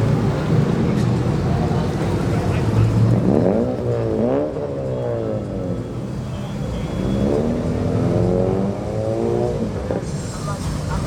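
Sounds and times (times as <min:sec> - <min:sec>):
car engine pulling away: 0:07.0 - 0:11.0.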